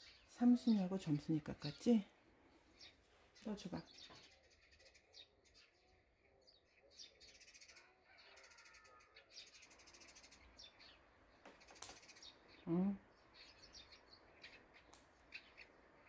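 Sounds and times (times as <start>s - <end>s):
faint birds chirping: 0.0s - 16.0s
rapid high bird trills: 7.3s - 16.0s.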